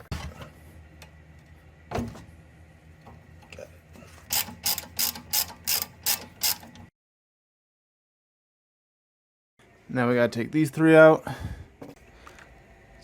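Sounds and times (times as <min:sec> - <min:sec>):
socket ratchet clicking: 0:04.3 - 0:06.8.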